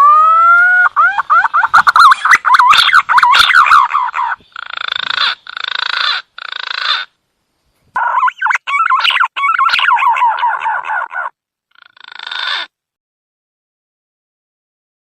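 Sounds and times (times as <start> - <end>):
pigeon rattling croaks: 1.0 - 7.2, 8.0 - 12.7.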